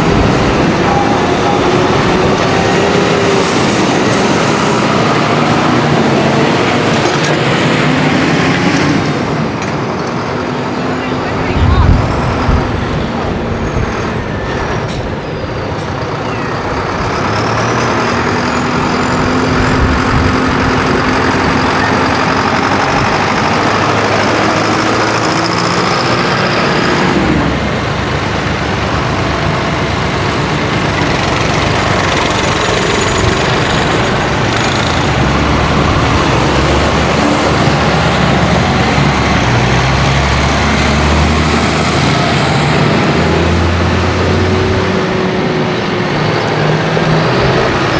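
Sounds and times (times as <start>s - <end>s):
diesel tractor engines running: 0.0s - 47.9s.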